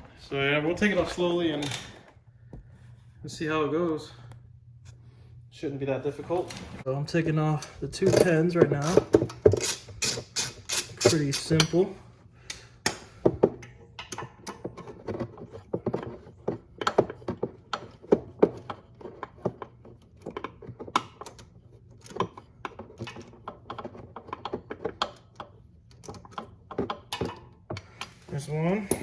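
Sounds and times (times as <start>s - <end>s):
hand tools clicking on metal: 7.5s - 11.9s.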